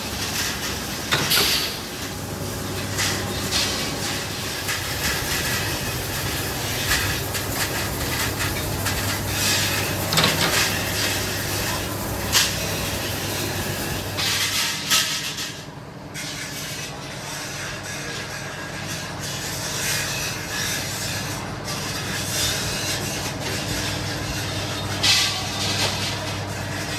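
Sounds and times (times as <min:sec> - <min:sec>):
machinery low hum: 0:00.0 - 0:14.6
metallic clanks and knocks: 0:01.0 - 0:01.9, 0:06.9 - 0:10.8.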